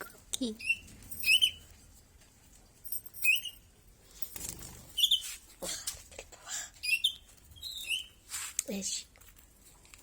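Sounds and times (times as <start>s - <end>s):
small bird chirping: 0.0s - 1.7s, 3.1s - 3.8s, 4.6s - 5.4s, 6.8s - 8.3s
wings fluttering: 4.2s - 5.4s.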